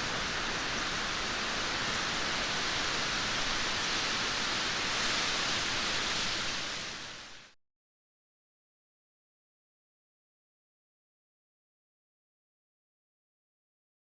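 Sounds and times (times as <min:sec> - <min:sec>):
steady rain: 0:00.0 - 0:07.6.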